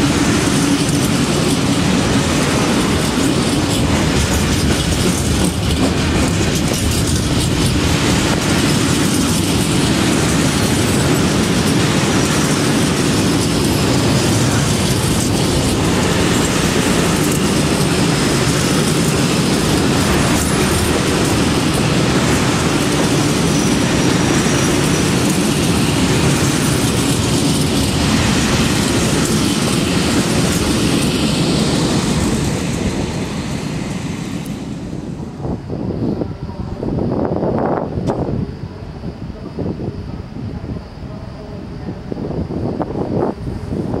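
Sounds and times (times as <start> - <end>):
freight train wheels clattering: 0.0 - 35.2.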